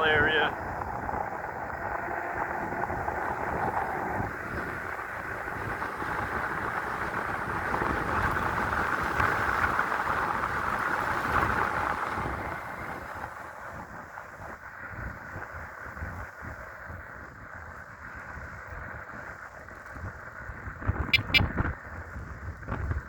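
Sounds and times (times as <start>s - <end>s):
wind rushing over microphone: 0.0s - 9.8s
electric bike road noise: 0.0s - 21.0s, 21.8s - 23.0s.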